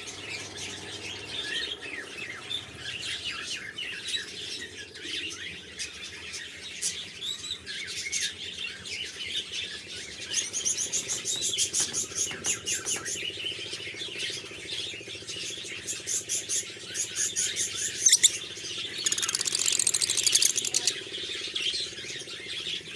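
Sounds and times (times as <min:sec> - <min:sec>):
small parrots chirping: 0:16.4 - 0:21.0.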